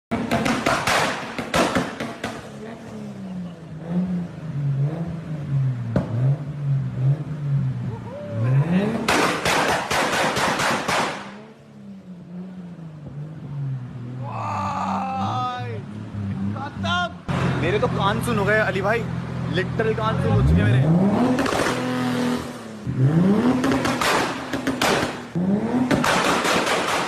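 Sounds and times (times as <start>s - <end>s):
car engine revving: 0.1s - 27.0s
exhaust pops and cracks: 21.4s - 21.9s, 23.6s - 25.3s, 25.9s - 27.0s.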